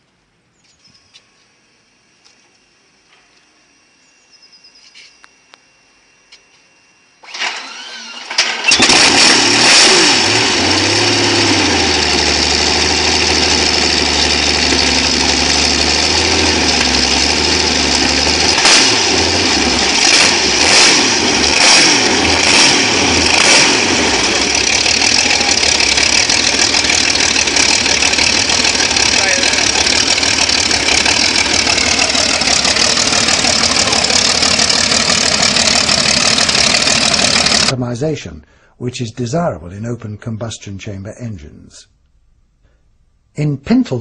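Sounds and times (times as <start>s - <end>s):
engine cranking and running: 7.2s - 37.8s.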